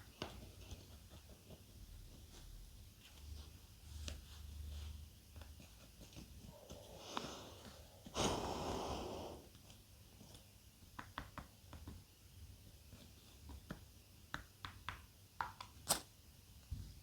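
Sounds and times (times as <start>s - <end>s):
breathy rush: 6.6s - 9.5s.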